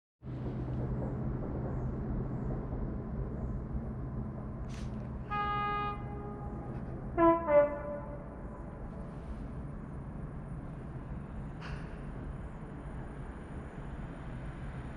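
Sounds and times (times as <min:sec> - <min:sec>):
train rumbling: 0:00.2 - 0:14.9
locomotive horn blasts: 0:05.2 - 0:08.6.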